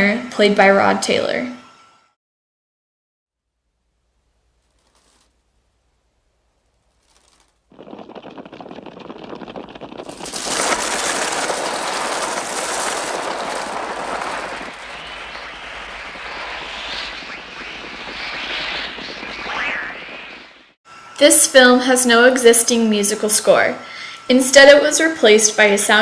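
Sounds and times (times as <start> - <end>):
flapping wings of many birds: 7.0 - 20.6.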